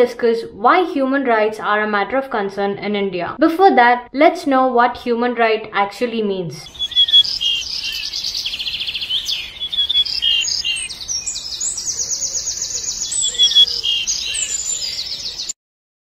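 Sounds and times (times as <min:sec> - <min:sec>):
songbirds chirping and singing: 0:06.7 - 0:15.6.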